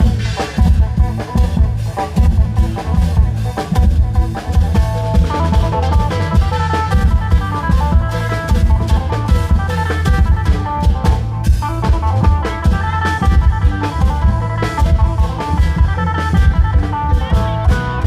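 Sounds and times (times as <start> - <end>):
drum band playing fast: 0.0 - 18.0
held melodic notes: 0.0 - 18.0.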